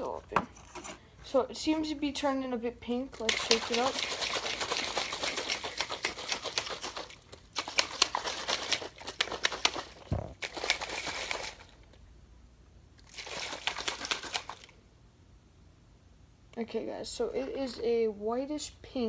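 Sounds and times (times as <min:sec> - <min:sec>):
water sloshing in shaker cup: 0:02.9 - 0:11.8, 0:13.0 - 0:14.8.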